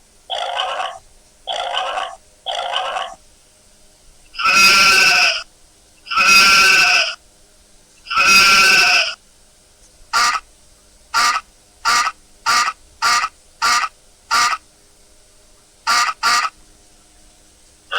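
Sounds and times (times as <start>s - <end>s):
sheep bleating: 4.4s - 5.4s, 6.1s - 7.2s, 8.1s - 9.2s.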